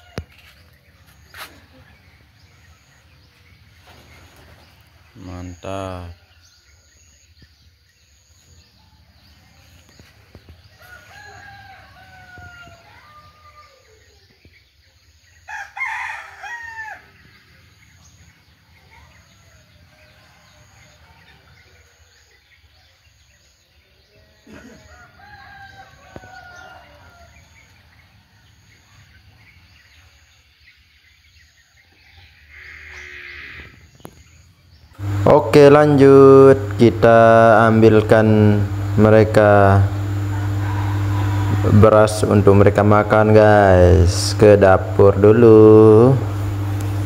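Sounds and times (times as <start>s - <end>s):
roosters crowing: 0.0s - 3.2s, 9.0s - 14.3s, 15.4s - 17.7s, 24.4s - 28.6s, 32.2s - 34.0s, 35.0s - 47.0s.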